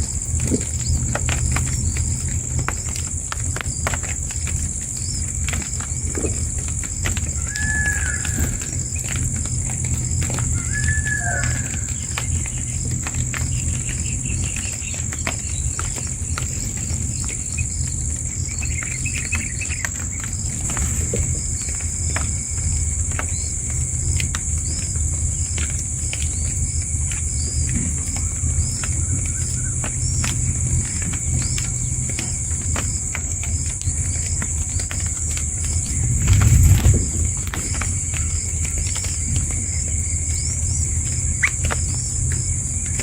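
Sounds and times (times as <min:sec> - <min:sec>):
high-pitched insect drone: 0:10.0 - 0:12.3
bird chirps: 0:10.3 - 0:15.9
low rumble: 0:33.8 - 0:43.0.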